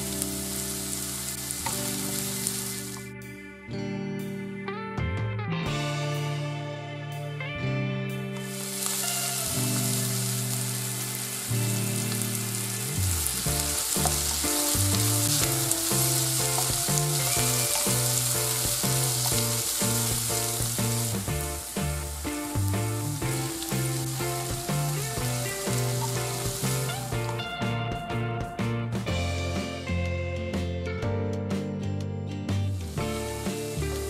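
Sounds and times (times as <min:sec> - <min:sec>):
vegetables sizzling in oil: 0:00.0 - 0:03.1, 0:08.4 - 0:27.8, 0:32.7 - 0:34.0.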